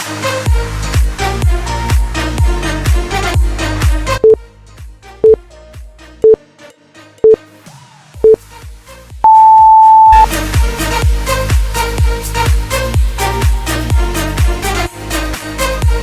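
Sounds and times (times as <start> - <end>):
electronic dance music: 0.0 - 4.4, 8.2 - 16.0
timer beeps: 9.2 - 10.3
long high timer beep: 9.3 - 10.3.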